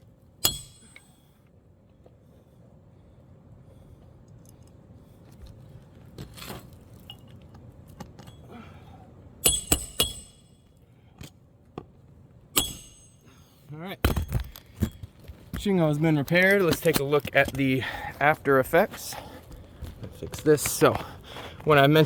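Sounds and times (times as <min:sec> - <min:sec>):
faint ticks and scrapes: 0:01.9 - 0:08.4.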